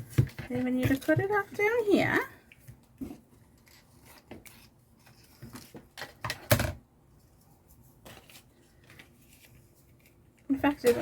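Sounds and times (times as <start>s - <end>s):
paper rustling: 2.7s - 6.2s, 7.1s - 10.9s.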